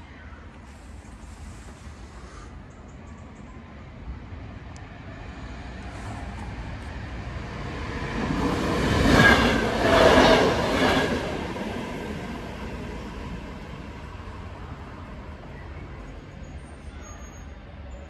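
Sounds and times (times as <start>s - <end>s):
electric train passing: 3.6s - 18.0s.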